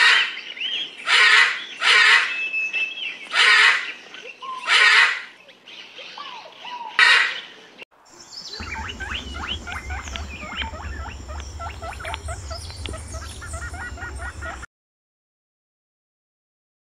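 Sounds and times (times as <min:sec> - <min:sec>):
small birds chirping: 0:05.4 - 0:14.7
low steady rumble: 0:08.6 - 0:14.7.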